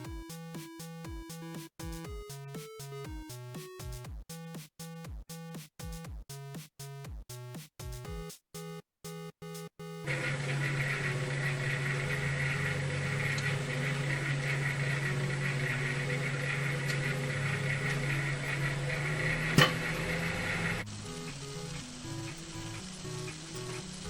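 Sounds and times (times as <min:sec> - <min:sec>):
microwave oven humming: 0:10.1 - 0:24.0.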